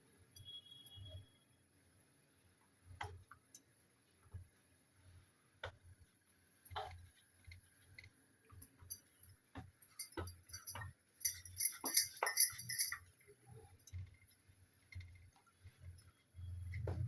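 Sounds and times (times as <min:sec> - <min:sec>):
metallic clinking and jingling: 0:09.9 - 0:13.1.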